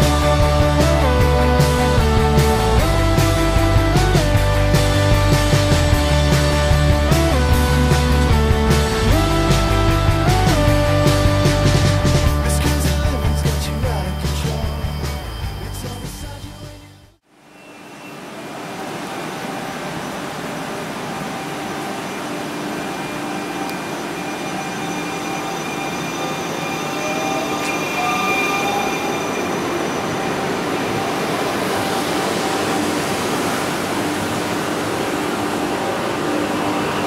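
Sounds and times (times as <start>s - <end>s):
electric train humming: 0.0s - 37.0s
rising whine: 0.0s - 37.0s
steady equipment tones: 17.5s - 37.0s.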